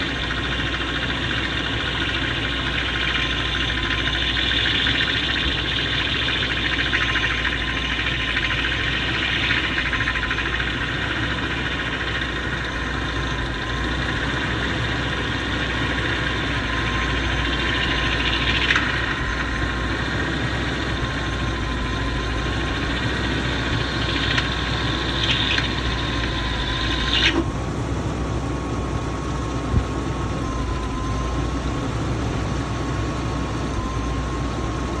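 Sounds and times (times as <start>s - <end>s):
loud hissing whir: 0.0s - 27.6s
car engine idling: 0.0s - 35.0s.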